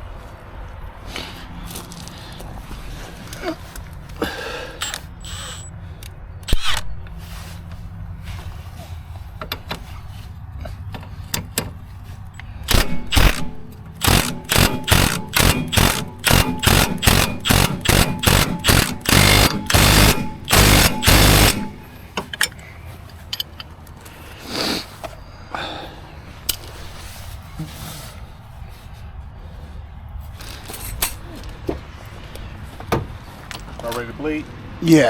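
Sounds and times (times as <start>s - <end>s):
impact wrench running: 4.8s - 5.7s, 6.4s - 7.4s, 12.4s - 22.6s.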